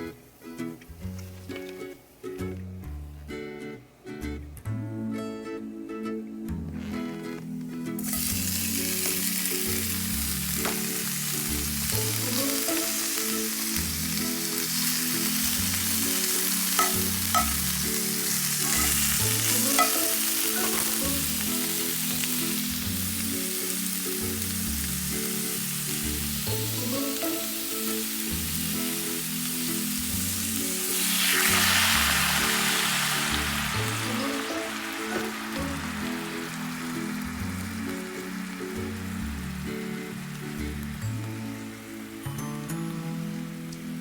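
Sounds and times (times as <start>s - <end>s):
soft background music: 0.0s - 44.0s
food sizzling in a frying pan: 8.0s - 42.4s.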